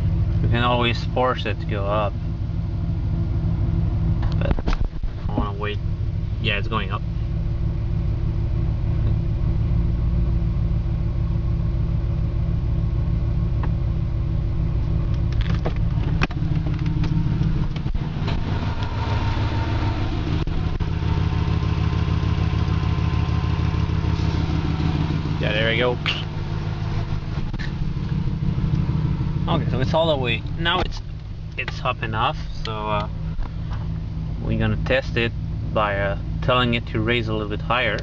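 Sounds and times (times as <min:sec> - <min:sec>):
car engine idling: 0:00.0 - 0:38.0
air suspension compressor running: 0:15.9 - 0:31.6.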